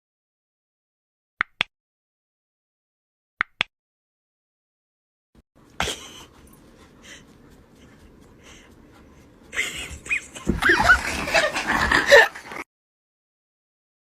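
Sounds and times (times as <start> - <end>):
dog panting: 5.6 - 12.2.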